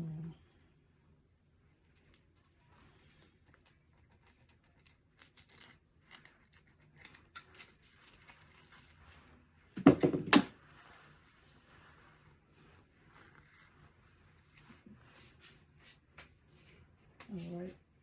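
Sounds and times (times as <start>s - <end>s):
fabric and packaging rustling: 1.6s - 17.9s.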